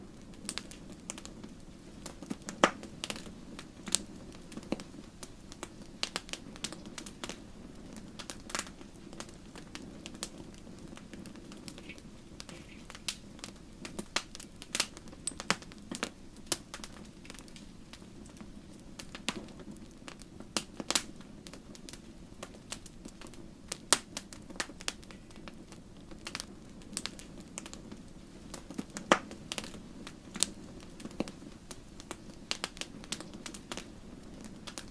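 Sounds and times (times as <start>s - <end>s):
wood fire crackling and popping: 0.0s - 34.9s.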